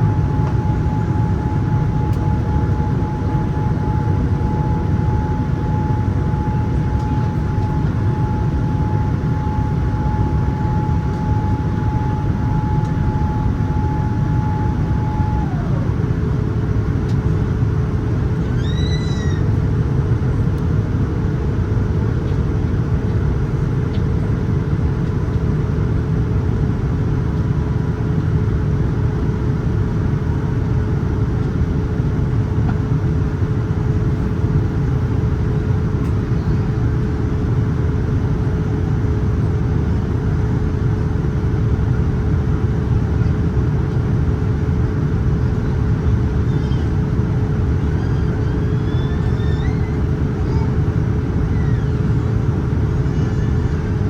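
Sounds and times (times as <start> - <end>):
steady cabin hum: 0.0 - 26.0, 39.9 - 54.0
airliner cabin rumble: 0.0 - 54.0.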